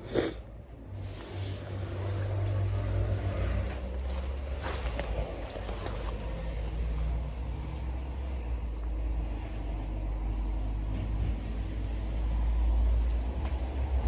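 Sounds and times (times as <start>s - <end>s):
steady low rumble: 12.2s - 14.0s.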